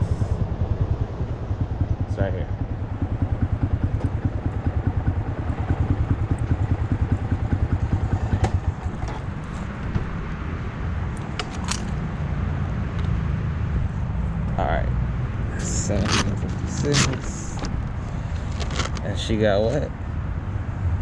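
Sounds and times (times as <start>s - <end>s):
motorcycle engine idling: 0.0s - 13.0s, 13.6s - 19.8s
steady low rumble: 0.0s - 21.0s
sharp clicks: 11.1s - 12.0s.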